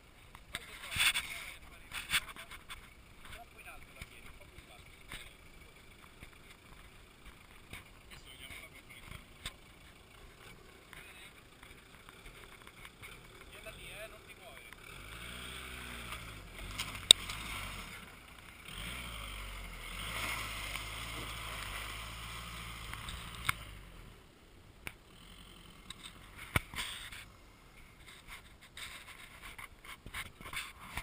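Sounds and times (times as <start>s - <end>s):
car engine running at low speed: 0.0s - 31.0s
sharp clicks: 16.1s - 17.5s, 22.8s - 23.7s.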